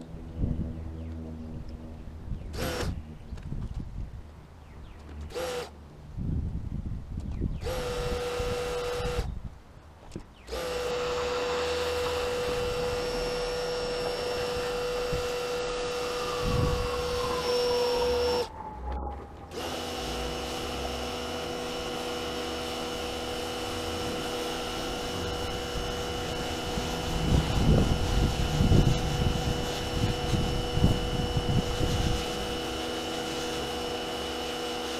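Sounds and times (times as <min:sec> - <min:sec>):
power tool motor whining: 0:02.5 - 0:03.0, 0:05.2 - 0:05.7, 0:07.5 - 0:09.4, 0:10.4 - 0:34.9.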